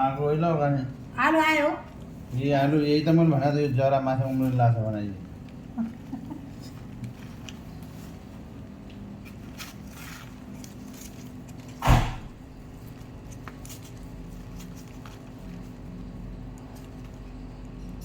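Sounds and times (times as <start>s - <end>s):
steady low hum: 0.0s - 18.0s
loud knock: 11.8s - 12.4s.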